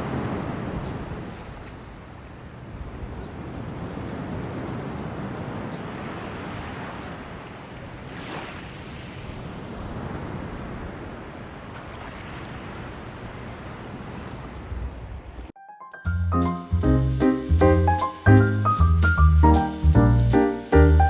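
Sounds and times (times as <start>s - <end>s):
wind buffeting microphone: 0.0s - 15.5s
sea waves: 0.0s - 15.6s.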